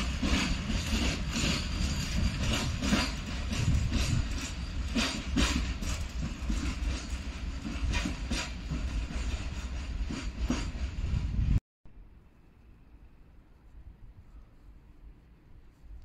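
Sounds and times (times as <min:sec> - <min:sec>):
wheel clacks over rail joints: 0:00.0 - 0:10.8
freight train rumbling past: 0:00.0 - 0:11.6.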